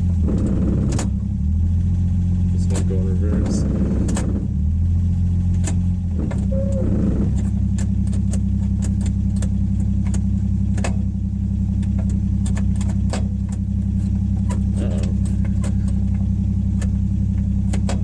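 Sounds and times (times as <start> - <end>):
car engine running: 0.0 - 18.0
light metallic rattles: 5.4 - 18.0.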